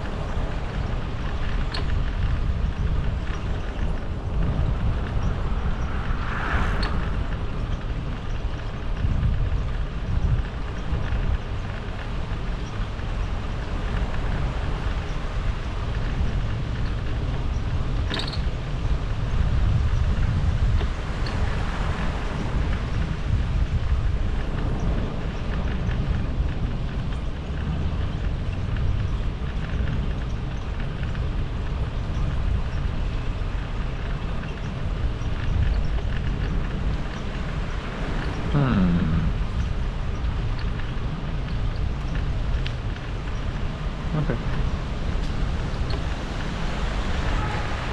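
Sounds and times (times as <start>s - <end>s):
wind buffeting microphone: 0.0s - 47.9s
faint ticks: 19.6s - 47.4s.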